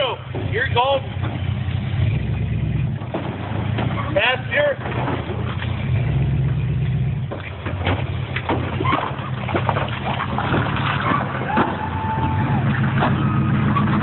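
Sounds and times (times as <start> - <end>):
off-road engine under load: 0.0 - 14.0
tires and chassis knocking: 0.0 - 14.0.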